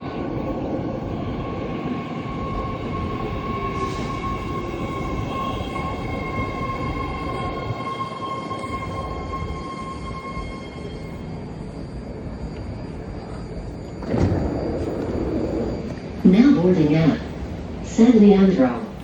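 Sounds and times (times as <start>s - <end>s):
train rumbling: 0.0s - 19.0s
high whine of held tones: 0.3s - 18.8s.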